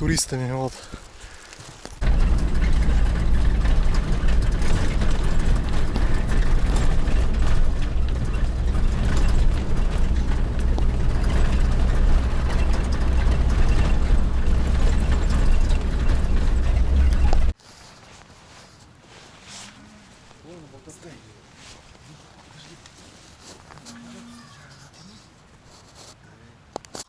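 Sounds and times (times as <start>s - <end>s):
road and wind noise: 0.0s - 17.6s
vehicle engine rumble: 1.8s - 17.6s.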